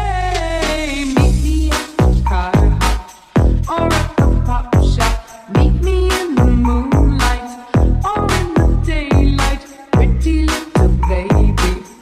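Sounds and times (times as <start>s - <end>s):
heavy bass hits: 0.3s - 5.0s.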